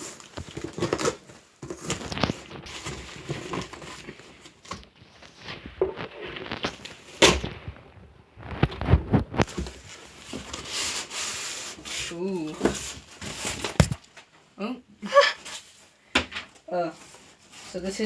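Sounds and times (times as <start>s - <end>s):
cardboard box crinkling and rustling: 0.0s - 14.2s.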